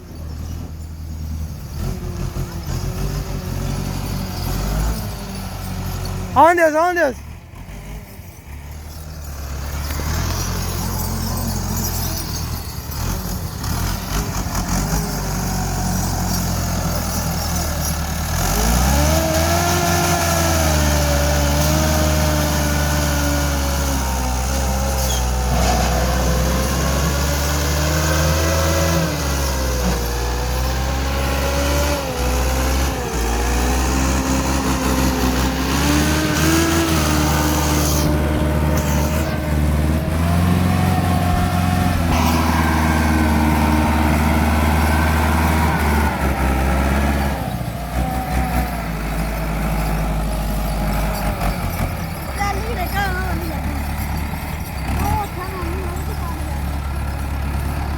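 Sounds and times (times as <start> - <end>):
tractor diesel engine running: 0.0 - 57.9
engine whine: 1.2 - 57.9.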